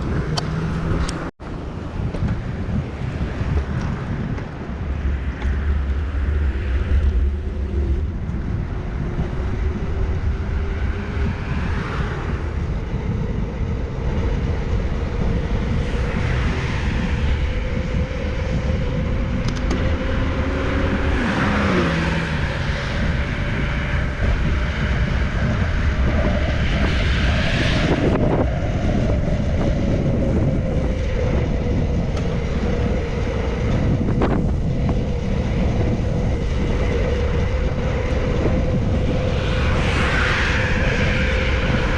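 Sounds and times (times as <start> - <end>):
vehicle passing by: 0.0 - 1.3, 5.6 - 41.9
road and traffic noise: 0.0 - 41.9
wind rumble on microphone: 0.0 - 41.9.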